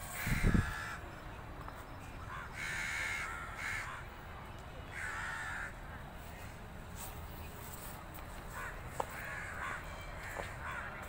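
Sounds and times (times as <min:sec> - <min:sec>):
birds cawing: 0:00.1 - 0:01.0, 0:02.2 - 0:04.1, 0:04.9 - 0:05.8, 0:08.5 - 0:11.0.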